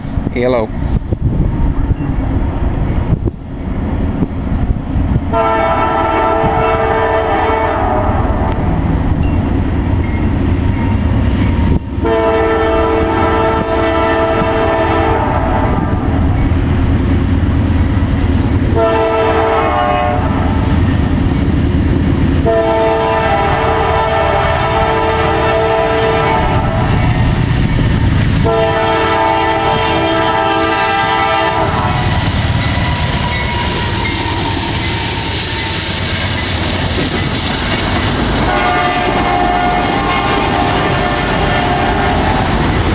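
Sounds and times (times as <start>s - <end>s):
train rumbling past: 0.0s - 42.9s
locomotive air horn blasts: 5.3s - 8.6s, 12.0s - 15.8s, 18.8s - 20.6s, 22.4s - 26.9s, 28.4s - 32.1s, 38.4s - 42.5s.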